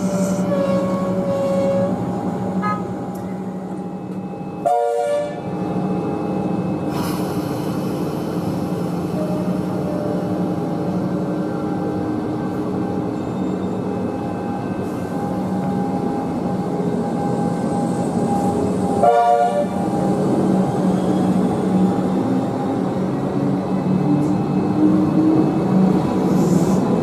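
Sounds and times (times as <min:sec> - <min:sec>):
train electrical hum: 0:00.0 - 0:27.0
train horn toot: 0:00.2 - 0:02.0, 0:02.6 - 0:02.9, 0:04.6 - 0:05.4, 0:19.0 - 0:19.8.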